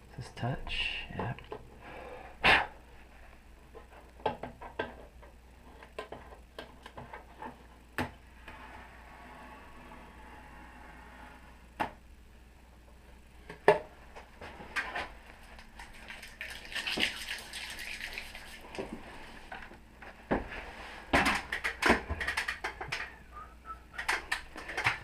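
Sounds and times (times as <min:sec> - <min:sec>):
sharp knocks and clicks: 0:21.2 - 0:23.1.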